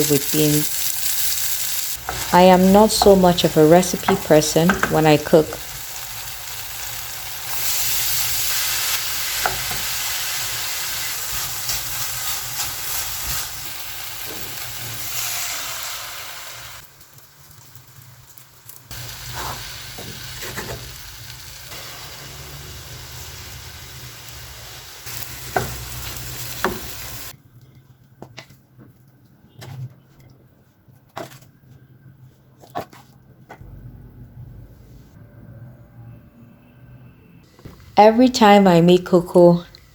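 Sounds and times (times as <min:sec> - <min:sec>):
food sizzling in a frying pan: 0:00.0 - 0:27.3
utensil tapping a pan: 0:04.0 - 0:05.2.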